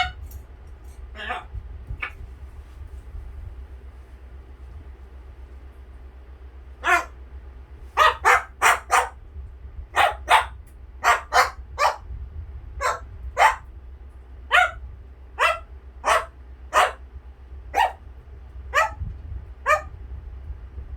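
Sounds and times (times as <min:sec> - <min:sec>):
parrot imitating dog barks: 0:01.1 - 0:02.1, 0:06.8 - 0:07.2, 0:08.0 - 0:09.2, 0:10.0 - 0:12.0, 0:12.8 - 0:13.7, 0:14.5 - 0:14.8, 0:15.4 - 0:17.0, 0:17.8 - 0:18.0, 0:18.7 - 0:19.0, 0:19.6 - 0:19.9.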